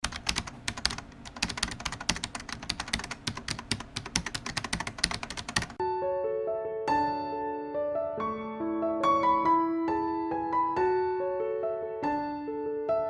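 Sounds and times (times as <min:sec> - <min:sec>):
typing on a keyboard: 0:00.0 - 0:05.8
soft piano music: 0:00.1 - 0:13.0.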